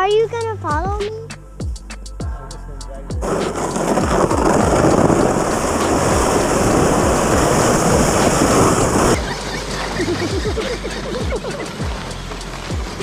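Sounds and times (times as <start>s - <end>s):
music with low regular beat: 0.0s - 13.0s
loud rushing noise: 3.2s - 13.0s.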